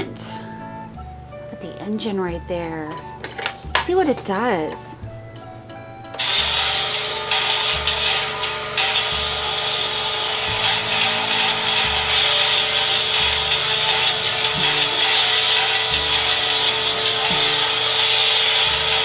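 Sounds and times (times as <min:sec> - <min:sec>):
toy car electronic engine buzzing: 0:06.2 - 0:19.0.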